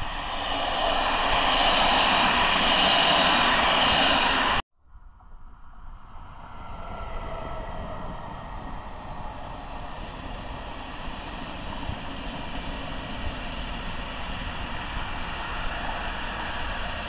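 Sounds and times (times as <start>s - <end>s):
train rushing past: 0.0s - 4.6s, 6.4s - 14.0s
quiet train with faint whine: 0.0s - 17.0s.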